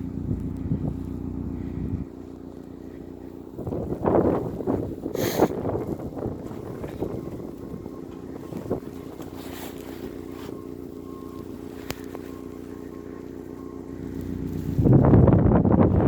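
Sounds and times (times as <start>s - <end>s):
vehicle engine idling: 0.0s - 16.0s
wind buffeting microphone: 3.4s - 9.3s, 14.1s - 16.0s.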